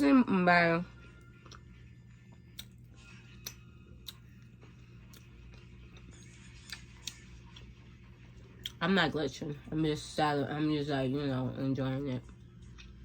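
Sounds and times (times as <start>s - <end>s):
low steady hum: 0.0s - 13.0s
chewing mouth clicks: 2.4s - 2.8s, 3.4s - 4.2s, 6.6s - 7.7s.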